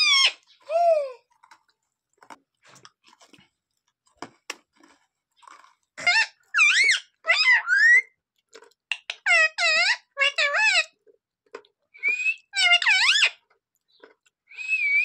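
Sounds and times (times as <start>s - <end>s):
parrot squawking: 0.0s - 0.6s, 6.0s - 8.1s, 8.9s - 10.9s, 12.0s - 13.4s
beak chewing clicks and crunches: 8.4s - 9.3s.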